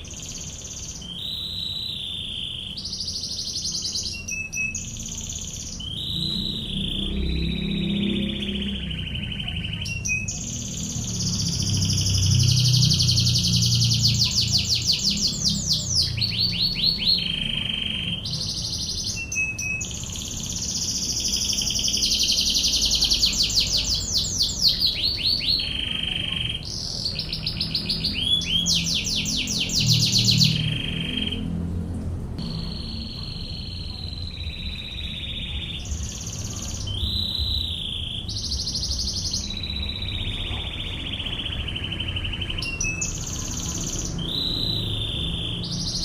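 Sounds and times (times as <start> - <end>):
canary singing trills: 0.0 - 31.8, 32.4 - 46.0.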